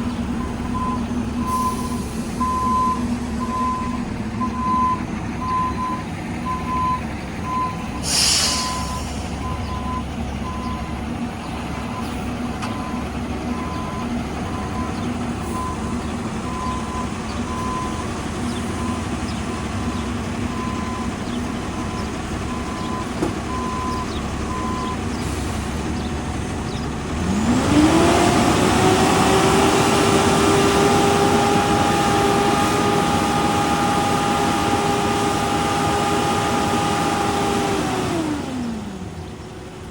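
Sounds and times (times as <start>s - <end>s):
engine revving: 0.0s - 39.3s
diesel engine running: 0.0s - 39.9s
truck reversing alarm beeping: 0.0s - 39.9s
air brakes hissing: 1.4s - 3.4s, 7.9s - 9.5s.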